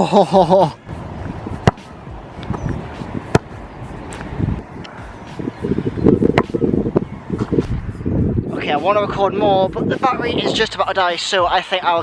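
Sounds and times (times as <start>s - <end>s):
wind on microphone: 0.8s - 10.9s.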